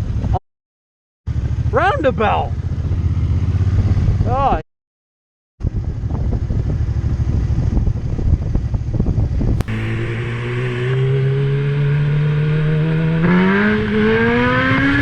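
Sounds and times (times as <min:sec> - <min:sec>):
motorcycle engine accelerating: 0:01.3 - 0:04.5, 0:05.7 - 0:15.0
wind buffeting: 0:05.7 - 0:14.4.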